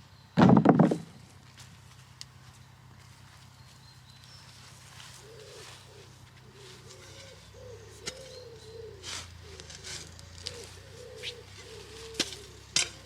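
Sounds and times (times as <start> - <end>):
pigeon cooing: 5.2 - 13.0.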